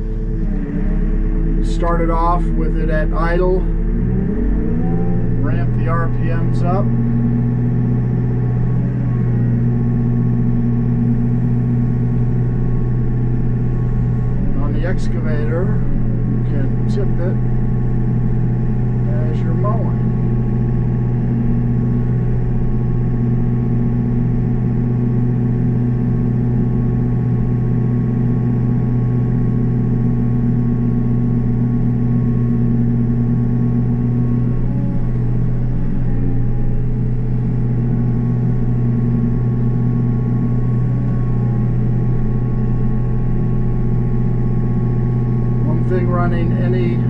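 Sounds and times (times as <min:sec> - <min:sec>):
excavator engine running: 0:00.0 - 0:47.0.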